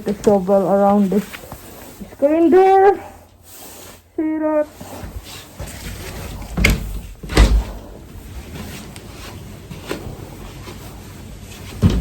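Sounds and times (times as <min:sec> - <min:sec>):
door thumping: 0:06.6 - 0:07.8, 0:11.8 - 0:12.0.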